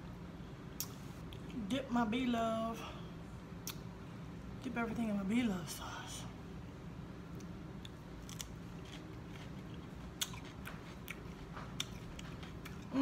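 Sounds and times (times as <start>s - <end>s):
crunchy chewing of cucumber: 7.3s - 13.0s.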